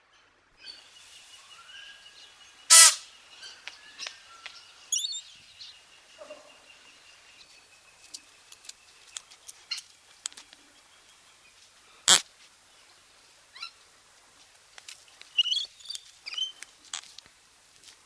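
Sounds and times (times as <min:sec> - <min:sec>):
parrot screeching and calling: 0:02.7 - 0:03.0
bird clicks and chips: 0:08.0 - 0:10.6, 0:14.8 - 0:17.2.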